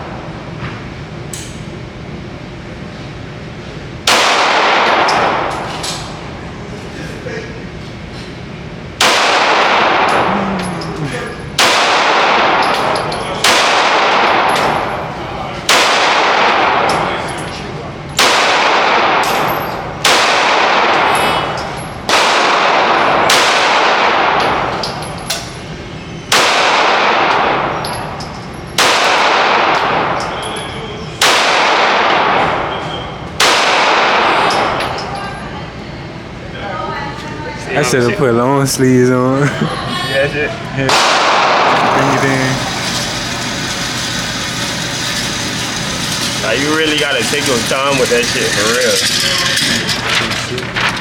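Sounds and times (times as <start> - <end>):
gunshots with echoing tail: 9.0 - 10.2, 11.6 - 12.6, 18.2 - 19.3, 20.0 - 21.1, 22.1 - 24.4, 26.3 - 27.7, 28.8 - 30.2, 31.2 - 32.6, 33.4 - 34.3, 40.9 - 42.2.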